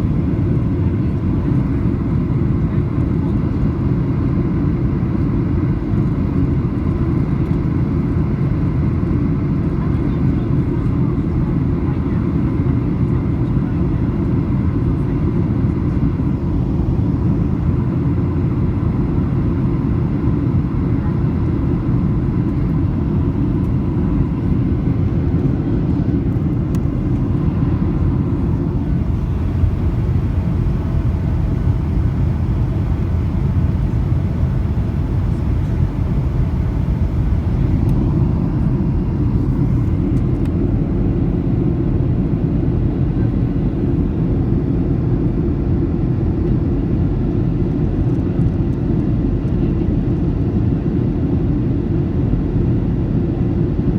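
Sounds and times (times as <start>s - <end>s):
aircraft engines rumbling: 0.0s - 53.9s
faint steady whine: 14.9s - 40.7s
airflow past fuselage: 16.1s - 40.6s.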